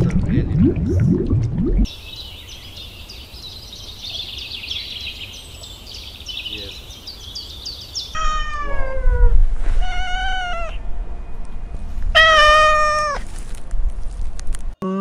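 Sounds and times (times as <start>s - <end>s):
cat meowing: 8.2s - 10.8s, 12.2s - 13.2s.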